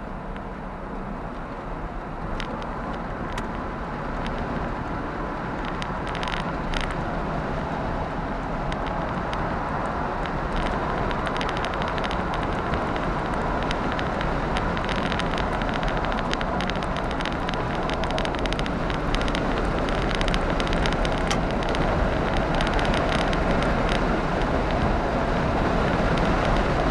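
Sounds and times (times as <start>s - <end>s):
car engine running: 0.0s - 26.9s
fine rapid ticking: 8.3s - 26.9s.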